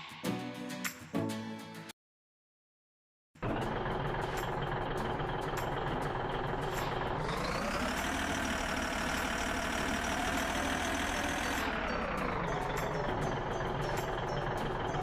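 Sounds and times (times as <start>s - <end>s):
heavy truck engine revving: 3.4s - 15.0s.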